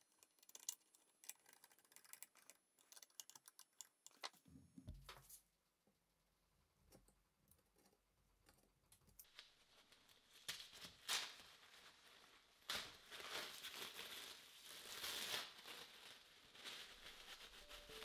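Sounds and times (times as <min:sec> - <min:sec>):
paper crinkling: 0:00.0 - 0:04.4, 0:09.2 - 0:18.0
masking tape ripping: 0:12.6 - 0:18.0.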